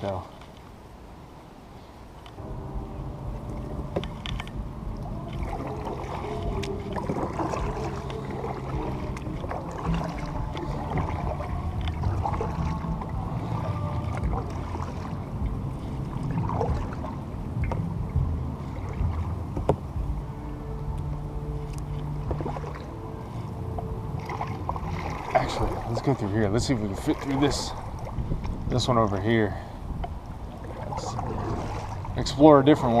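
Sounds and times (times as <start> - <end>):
paddle strokes splashing: 0.0 - 33.0
water moving along hull: 0.0 - 33.0
small knocks on kayak: 19.5 - 19.8.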